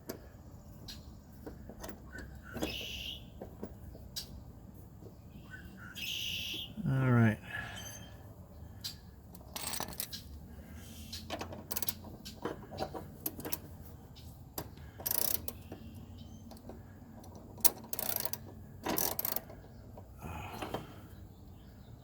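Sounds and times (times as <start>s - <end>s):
metallic clicks of hand tools: 14.6s - 15.7s, 16.5s - 19.6s.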